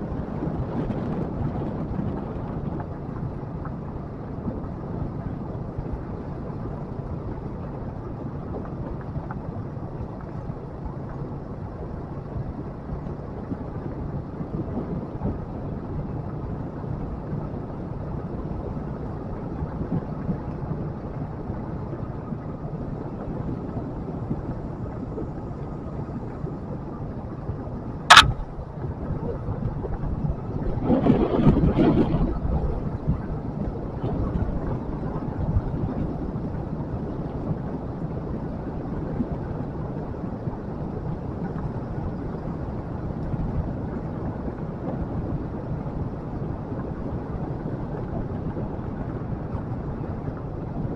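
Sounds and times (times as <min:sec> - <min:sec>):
wind and road noise: 0:00.0 - 0:50.9
sharp crack: 0:28.1 - 0:28.6
motorcycle engine running: 0:28.1 - 0:28.9.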